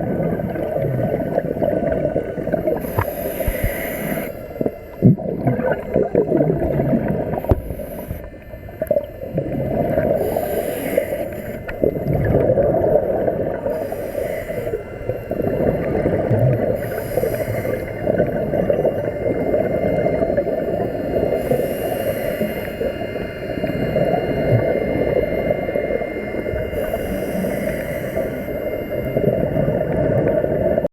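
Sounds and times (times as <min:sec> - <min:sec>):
exhaled bubbles: 0:00.0 - 0:30.9
diver breathing through regulator: 0:01.0 - 0:05.0, 0:05.6 - 0:09.0, 0:09.8 - 0:20.3, 0:21.2 - 0:23.4, 0:26.5 - 0:29.1.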